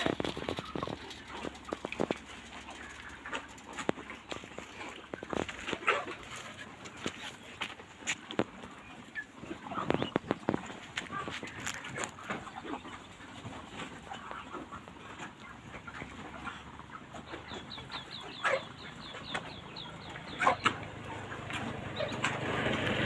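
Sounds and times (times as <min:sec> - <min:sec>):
chickens clucking and peeping: 0:00.0 - 0:23.0.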